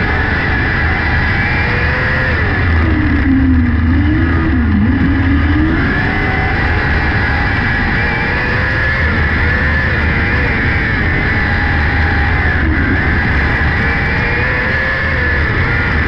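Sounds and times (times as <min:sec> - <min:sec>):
racing car engine: 0:00.0 - 0:16.0.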